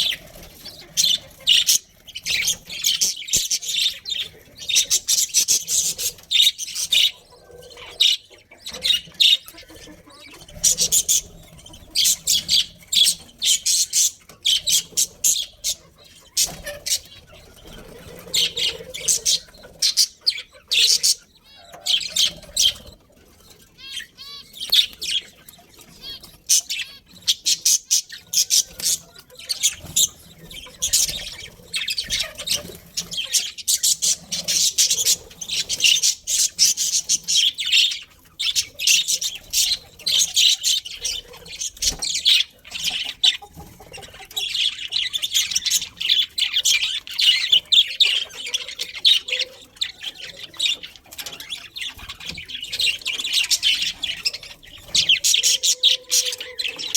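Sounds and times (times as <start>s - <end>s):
budgerigars chirping: 0.0s - 56.9s.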